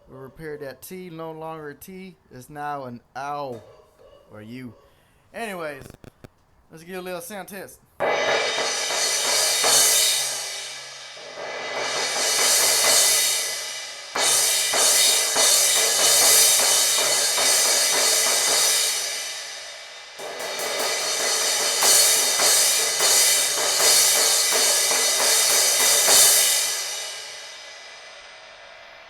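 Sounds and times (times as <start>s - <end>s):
crash cymbal struck and ringing: 8.0s - 29.0s.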